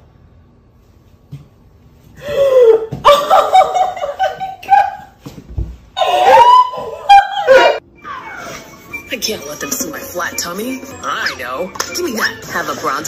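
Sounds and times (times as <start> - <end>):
high-pitched held laugh: 3.0 - 5.1, 6.0 - 8.8
man and woman laughing: 3.0 - 5.1, 6.9 - 8.7.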